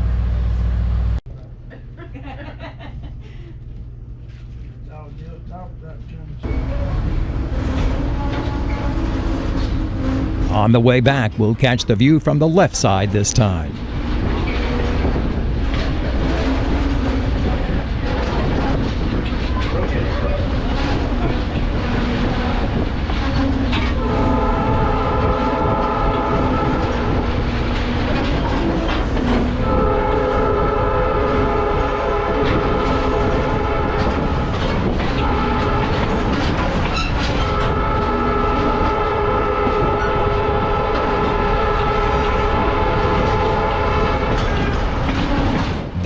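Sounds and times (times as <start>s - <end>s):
locomotive air horn blasts: 24.0s - 27.2s, 29.6s - 34.4s, 37.5s - 44.3s.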